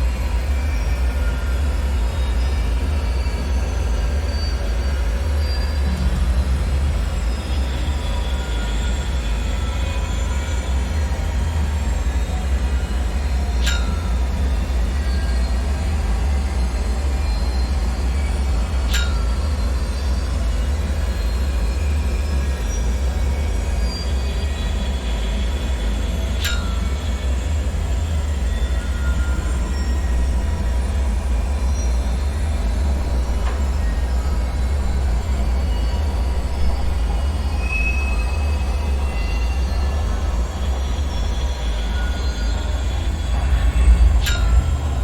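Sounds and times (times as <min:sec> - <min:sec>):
deep rumbling drone: 0:00.0 - 0:45.0
faint high metallic squeaks: 0:00.1 - 0:11.2, 0:11.8 - 0:45.0
sharp high ringing pings: 0:13.6 - 0:14.6, 0:18.9 - 0:20.1, 0:26.4 - 0:27.4, 0:28.3 - 0:45.0.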